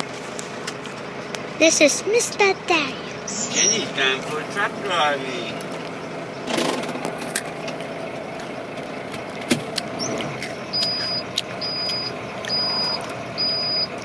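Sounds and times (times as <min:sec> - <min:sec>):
truck engine running: 0:00.0 - 0:14.0
high repeating beep: 0:10.7 - 0:14.0
sharp clicks: 0:10.8 - 0:13.8.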